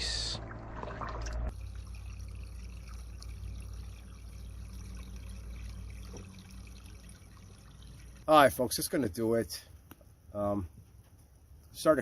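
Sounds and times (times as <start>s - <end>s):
low steady rumble: 0.0s - 8.6s
creek water trickling: 0.0s - 9.0s.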